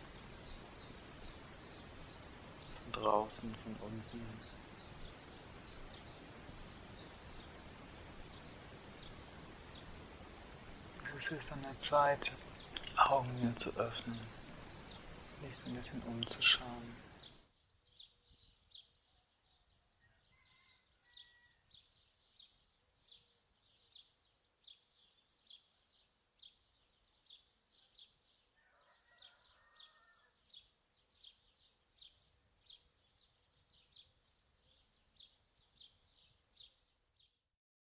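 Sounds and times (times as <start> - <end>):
low background hiss: 0.0 - 17.4
faint bird chirping: 0.0 - 37.5.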